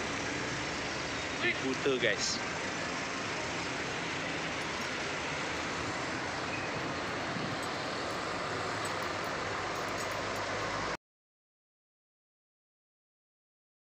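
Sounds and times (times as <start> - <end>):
vehicle moving on road: 0.0 - 11.0.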